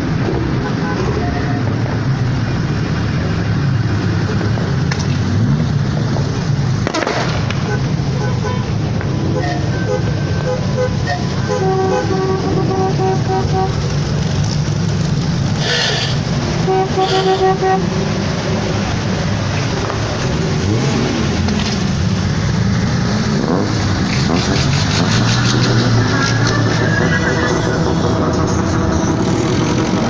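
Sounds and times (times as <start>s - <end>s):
car engines revving: 0.0s - 30.0s
short horn-like notes: 15.6s - 18.0s.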